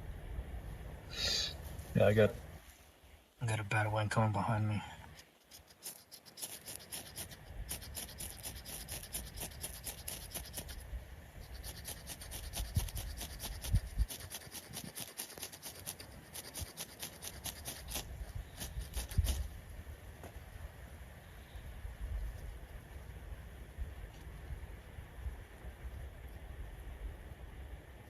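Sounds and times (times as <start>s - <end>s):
scraping strokes by hand: 5.0s - 19.6s.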